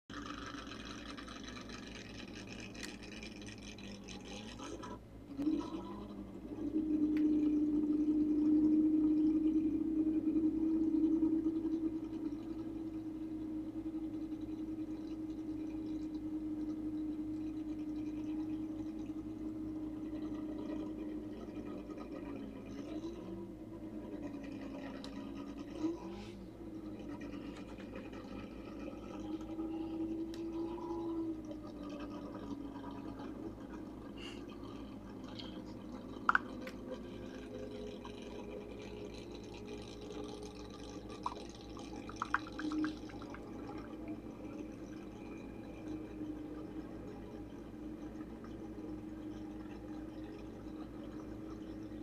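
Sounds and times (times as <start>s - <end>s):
car engine fast idle revving: 0.1s - 5.0s.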